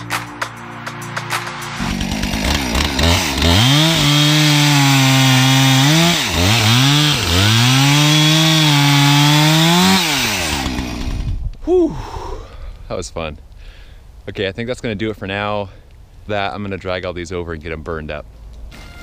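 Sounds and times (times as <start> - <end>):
chainsaw cutting wood: 1.3 - 11.4.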